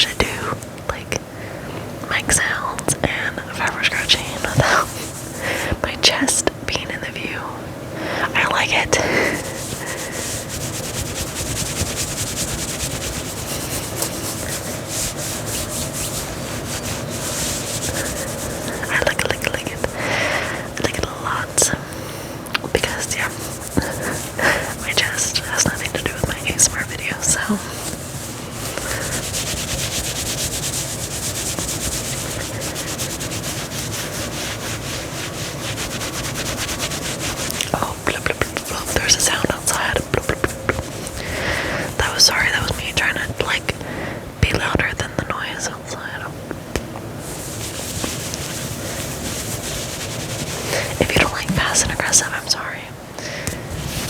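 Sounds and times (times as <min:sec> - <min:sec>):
fingers scratching fabric: 0:08.5 - 0:21.7, 0:22.7 - 0:43.6, 0:47.2 - 0:52.6.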